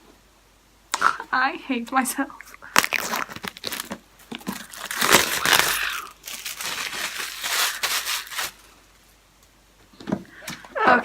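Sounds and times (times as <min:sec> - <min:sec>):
plastic wrap crinkling: 0:02.6 - 0:08.8.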